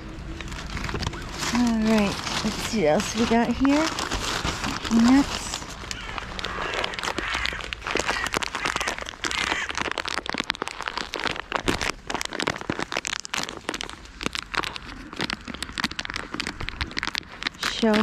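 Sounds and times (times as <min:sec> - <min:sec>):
bag of peanuts rustling: 0:00.0 - 0:18.0.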